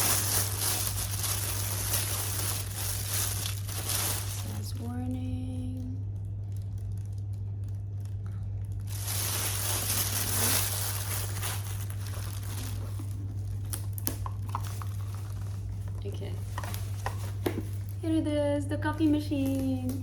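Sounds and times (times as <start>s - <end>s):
packaging crinkling and tearing: 0.0s - 5.1s, 6.1s - 18.0s
steady low hum: 0.0s - 20.0s.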